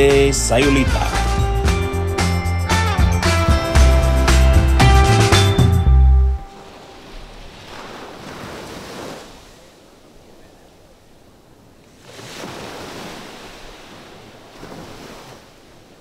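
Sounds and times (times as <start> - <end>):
ocean waves on beach: 6.4 - 16.0.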